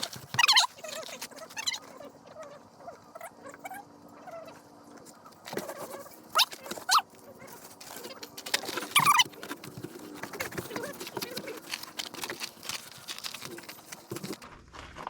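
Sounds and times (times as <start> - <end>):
sharp squeaks: 0.0 - 2.1, 5.5 - 14.4.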